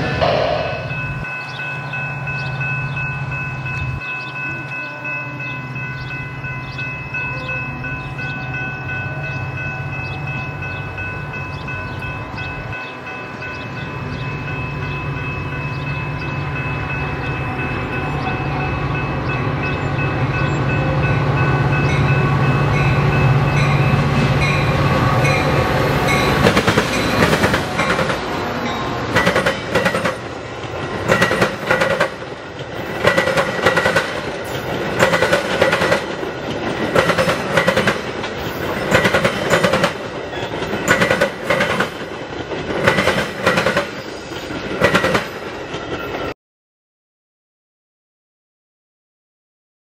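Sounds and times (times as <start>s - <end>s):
railroad crossing bell ringing: 0.0s - 46.3s
diesel train passing: 0.0s - 46.4s
wheels clacking over rail joints: 24.1s - 46.3s.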